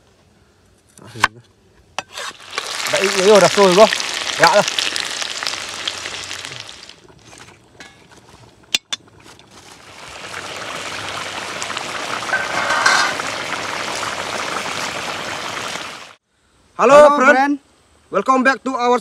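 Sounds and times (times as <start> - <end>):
food sizzling in hot oil: 2.0 - 8.0, 8.6 - 16.2
gravy simmering hiss: 2.0 - 16.2.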